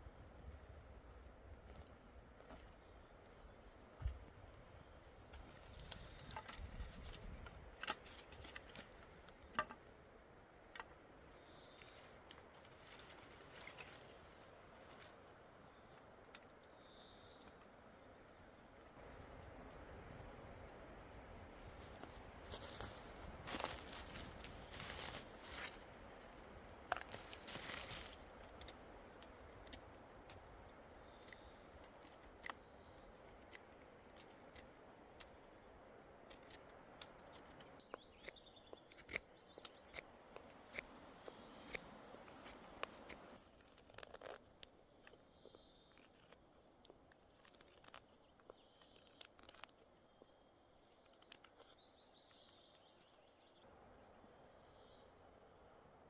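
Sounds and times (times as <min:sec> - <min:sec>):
faint bird chirps: 0:10.7 - 0:12.2, 0:15.6 - 0:17.6, 0:48.0 - 0:55.3.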